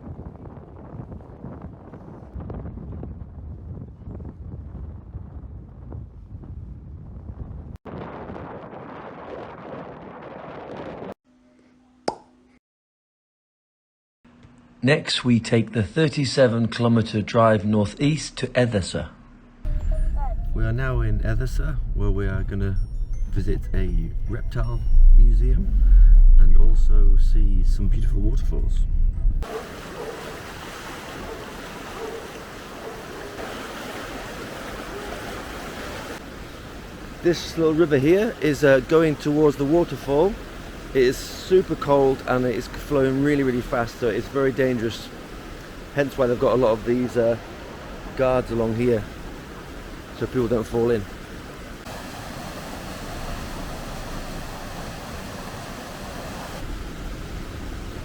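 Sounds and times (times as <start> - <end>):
low rumble: 19.7 - 29.4
river rushing: 29.4 - 58.0.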